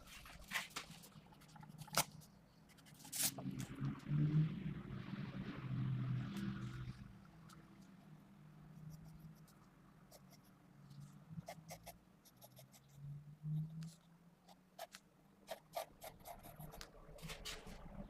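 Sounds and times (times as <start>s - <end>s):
pencil scratching on paper: 11.4s - 13.0s, 14.5s - 17.4s.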